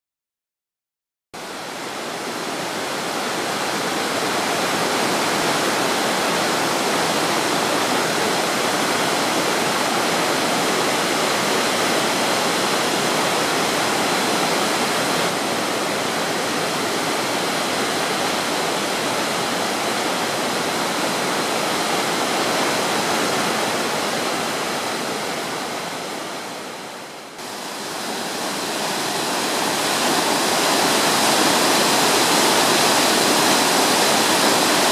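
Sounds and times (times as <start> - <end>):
waterfall rushing: 1.4 - 34.9.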